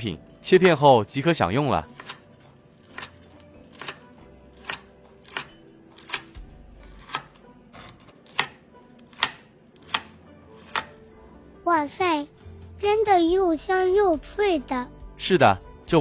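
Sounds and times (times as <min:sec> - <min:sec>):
knife cutting on cutting board: 0:01.8 - 0:11.1.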